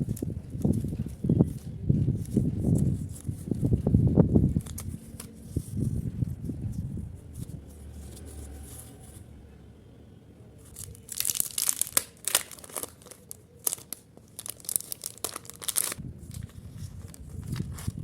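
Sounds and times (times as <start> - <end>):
packaging crinkling and tearing: 10.7 - 18.0.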